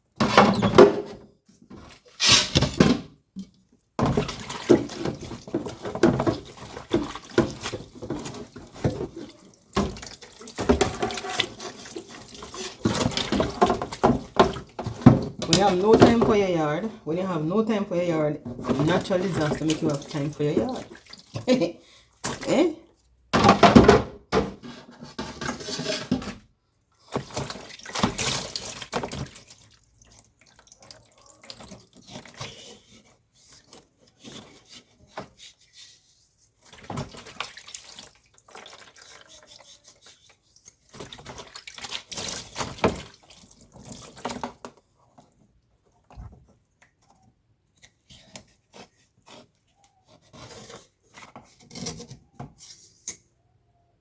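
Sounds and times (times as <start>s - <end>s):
water pouring and splashing: 4.0s - 22.6s, 27.0s - 47.1s.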